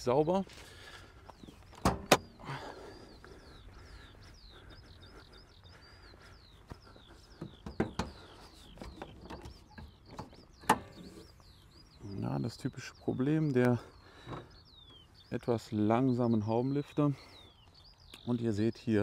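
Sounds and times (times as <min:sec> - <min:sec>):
clicks and rattles of bonnet latch: 0:01.8 - 0:02.4, 0:07.6 - 0:08.2, 0:08.8 - 0:11.3
bird whistling song: 0:02.5 - 0:19.0.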